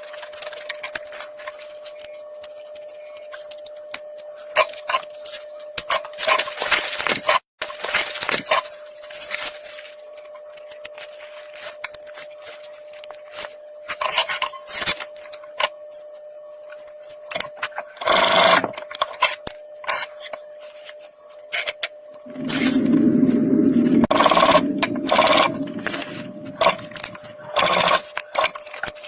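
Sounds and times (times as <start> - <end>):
faint steady hum: 8.4 - 29.0.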